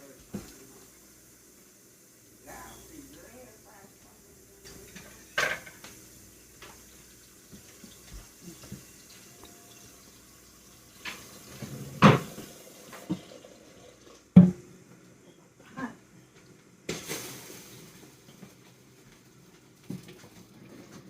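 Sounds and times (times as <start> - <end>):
water splashing in sink: 6.6 - 14.6.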